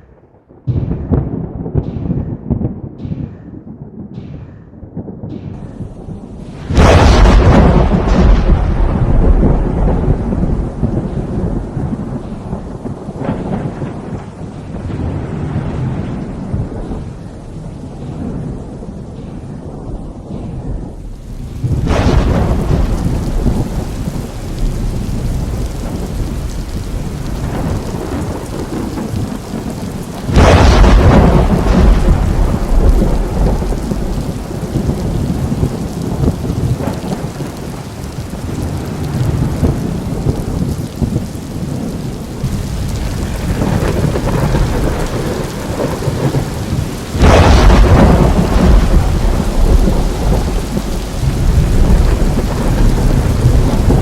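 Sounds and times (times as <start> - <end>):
rumbling thunderclaps: 0.0 - 54.0
heavy rain: 5.3 - 54.0.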